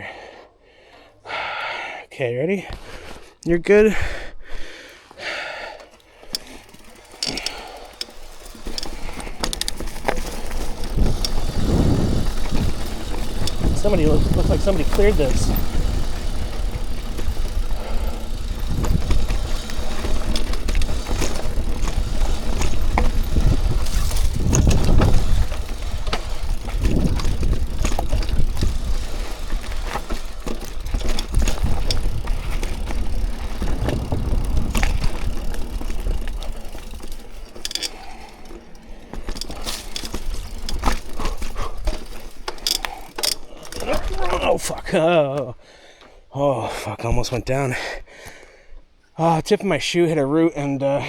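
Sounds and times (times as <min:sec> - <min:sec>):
bike tyres rolling on dirt: 0:04.9 - 0:46.2
bike rattling over bumps: 0:05.2 - 0:46.1.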